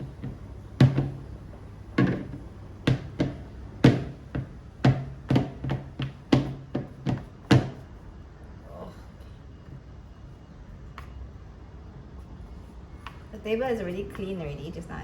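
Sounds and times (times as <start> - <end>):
dull thumps on a hard surface: 0.0 - 7.8.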